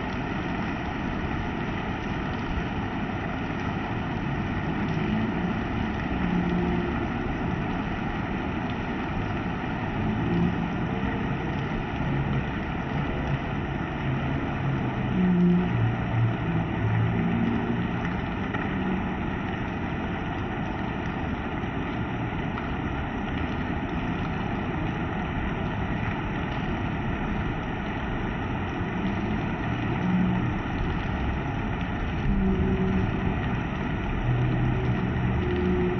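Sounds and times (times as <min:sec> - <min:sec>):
heavy rain rushing: 0:00.0 - 0:35.9.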